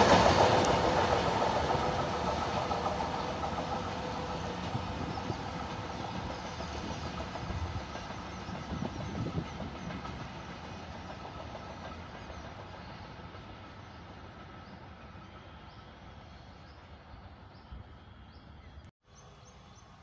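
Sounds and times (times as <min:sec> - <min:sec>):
train wheel clacks: 0:00.0 - 0:15.3
train wheels rumbling on rails: 0:00.0 - 0:18.3.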